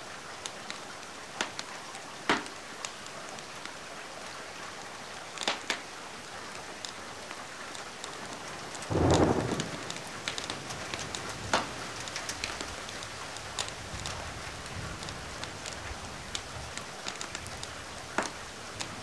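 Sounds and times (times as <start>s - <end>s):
steady rain: 0.0s - 19.0s
wood fire crackling: 6.5s - 19.0s.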